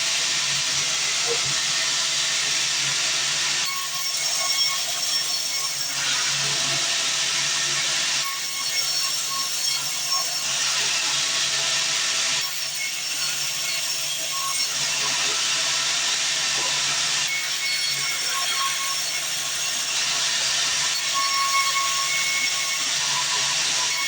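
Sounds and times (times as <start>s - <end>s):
band saw cutting timber: 0.0s - 24.0s.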